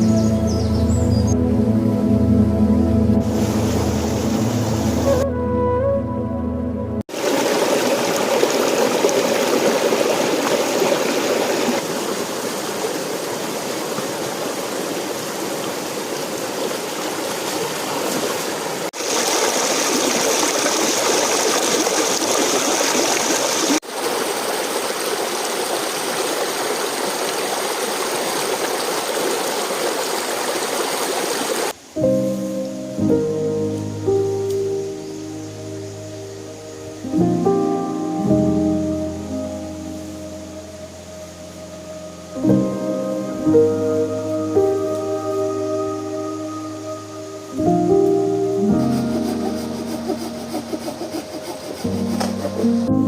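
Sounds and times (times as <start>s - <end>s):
creek water flowing over rocks: 3.3s - 5.2s, 7.1s - 33.0s, 38.8s - 53.0s.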